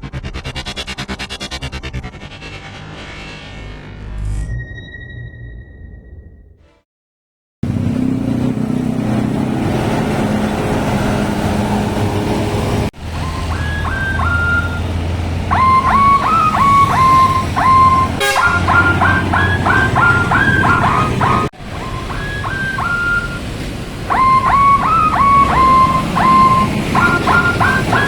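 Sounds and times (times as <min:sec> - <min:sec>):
bus engine running: 0:07.6 - 0:28.0
multi-note bus horn tunes: 0:13.1 - 0:23.5.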